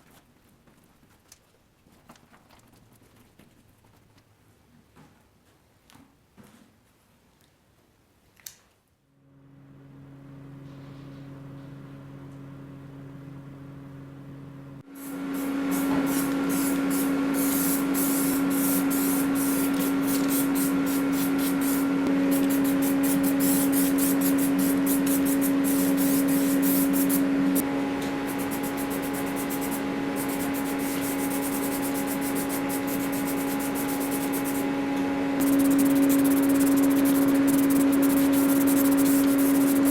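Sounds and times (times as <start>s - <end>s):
workshop motor humming: 9.2s - 39.9s.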